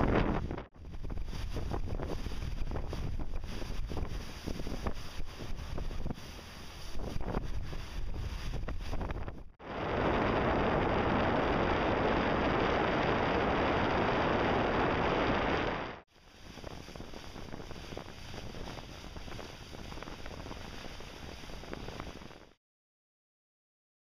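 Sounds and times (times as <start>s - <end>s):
wind noise on microphone: 0.0s - 22.6s
water rushing and splashing: 9.6s - 22.4s.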